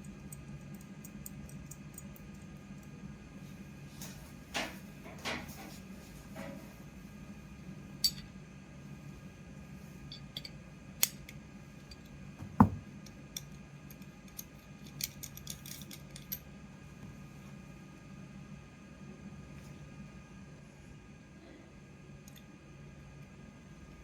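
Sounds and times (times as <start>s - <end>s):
faint machine hum: 0.0s - 24.0s
heavy knock: 12.4s - 12.8s
small metal clicks and clinks: 13.3s - 16.4s.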